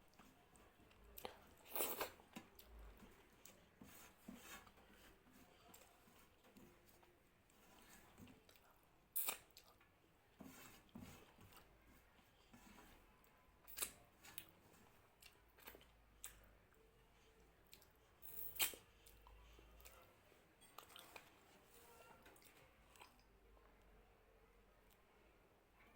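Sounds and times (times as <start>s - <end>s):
person chewing food: 0.1s - 9.9s, 13.6s - 16.5s, 17.2s - 18.0s, 18.6s - 21.5s, 22.4s - 23.3s.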